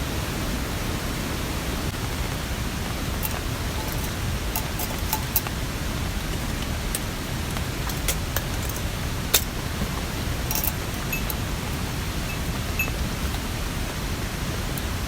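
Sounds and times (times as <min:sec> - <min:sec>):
mountain stream rushing: 0:00.0 - 0:15.0
rain: 0:00.0 - 0:15.0.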